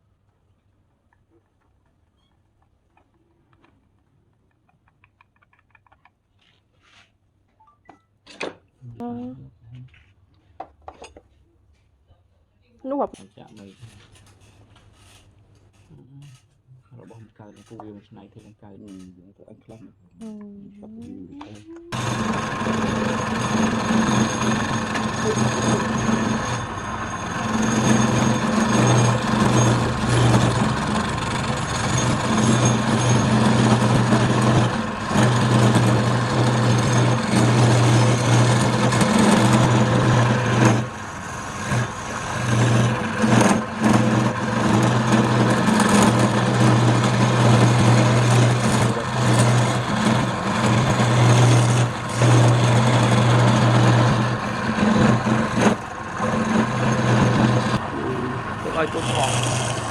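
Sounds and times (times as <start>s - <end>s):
wood lathe humming and hissing: 21.0s - 59.9s.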